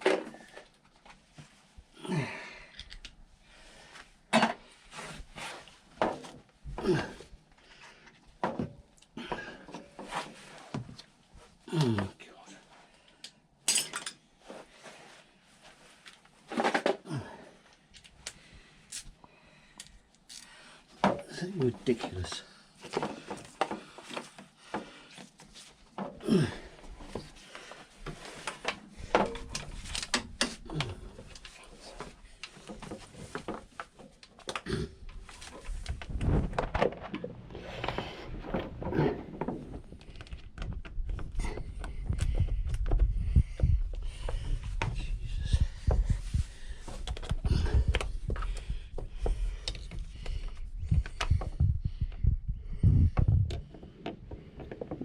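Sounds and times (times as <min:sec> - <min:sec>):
heavy low thuds and rumbling: 0:38.4 - 0:46.8, 0:47.4 - 0:53.6.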